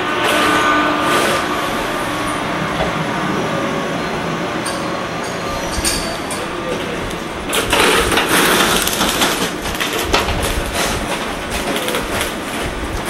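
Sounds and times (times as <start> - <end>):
clicks and clatter: 5.7 - 13.0.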